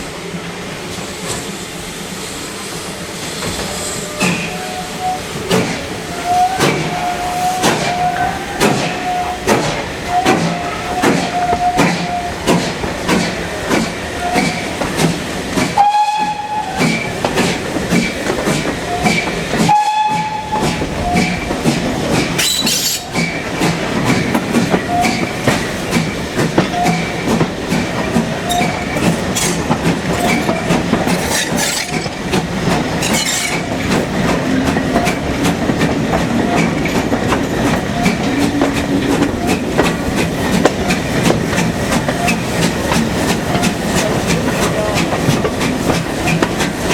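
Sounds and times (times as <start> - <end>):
train rumble: 0.0 - 46.9
wheels clicking over rail joints: 5.4 - 46.9.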